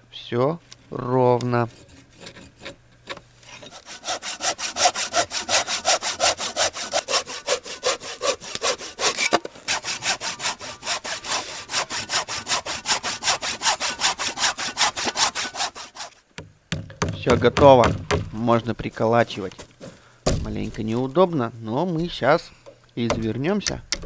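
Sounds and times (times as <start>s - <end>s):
hand saw cutting wood: 1.3s - 16.2s.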